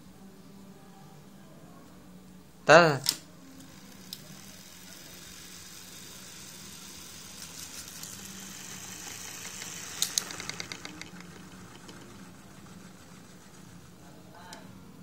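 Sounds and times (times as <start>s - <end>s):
small motors humming and whirring: 3.3s - 15.0s
quick ticks: 8.9s - 12.9s
sharp clicks: 9.4s - 12.0s.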